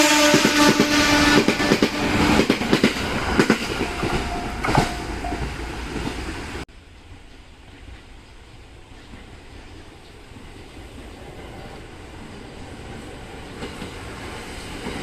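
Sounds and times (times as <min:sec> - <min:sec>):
train wheels clacking: 0:00.0 - 0:08.3.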